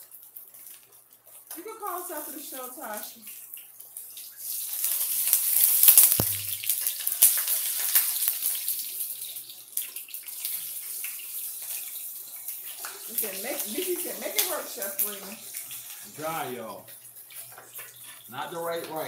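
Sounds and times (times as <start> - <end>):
food sizzling in hot oil: 0.0 - 19.0
knock: 6.2 - 6.6.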